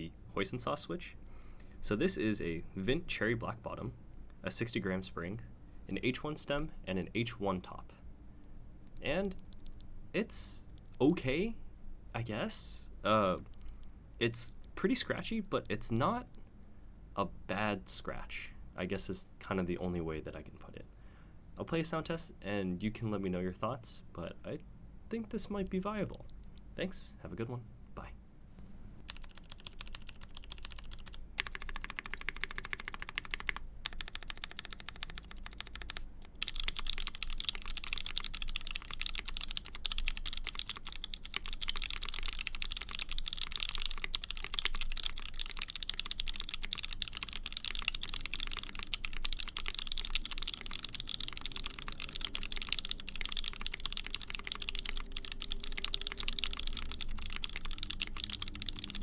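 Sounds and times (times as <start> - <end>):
typing on mechanical keyboard: 8.9 - 9.8, 29.1 - 59.0.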